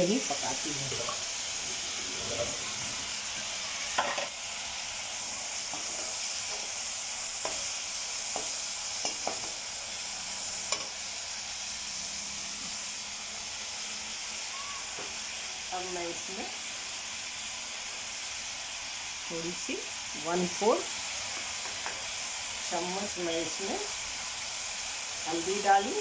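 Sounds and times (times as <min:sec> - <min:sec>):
masala sizzling in oil: 0:00.0 - 0:26.0
steel spoon scraping a pan: 0:02.0 - 0:04.4.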